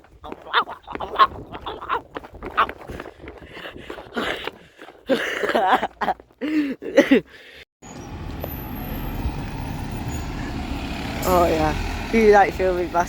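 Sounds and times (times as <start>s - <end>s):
traffic noise: 7.8s - 13.0s
vehicle engine running: 7.8s - 13.0s.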